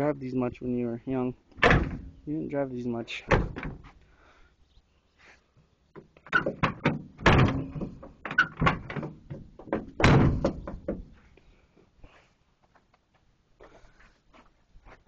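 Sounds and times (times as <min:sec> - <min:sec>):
truck door slams and clunks: 0:01.6 - 0:02.2, 0:03.3 - 0:03.9, 0:06.3 - 0:11.2
metal knocks: 0:06.3 - 0:11.2.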